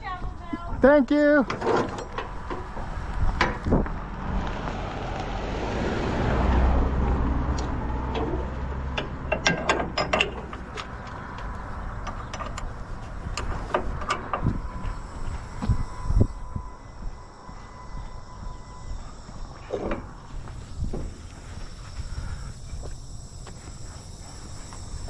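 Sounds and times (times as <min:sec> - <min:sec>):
forklift engine rumbling: 0:01.4 - 0:24.2
metal clanks and rattles: 0:01.5 - 0:03.7, 0:07.6 - 0:14.8.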